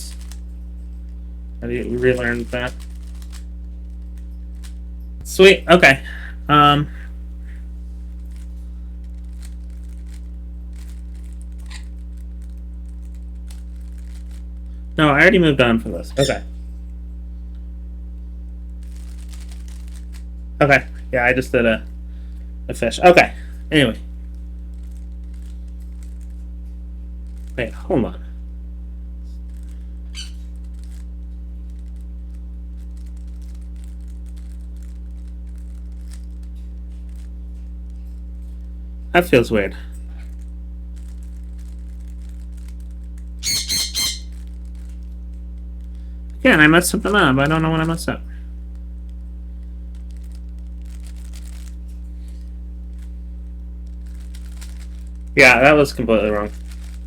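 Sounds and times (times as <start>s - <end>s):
low electrical hum: 0.0s - 57.0s
puzzle cube plastic clicking: 2.4s - 3.4s.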